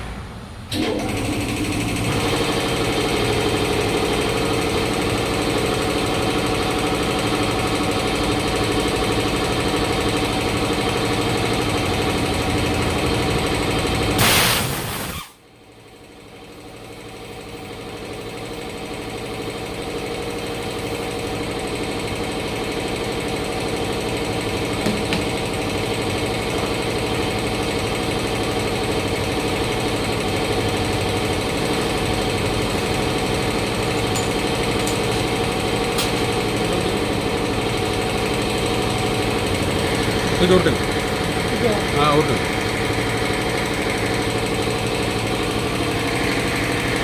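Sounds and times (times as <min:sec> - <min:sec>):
machine motor humming: 0:22.9 - 0:47.0.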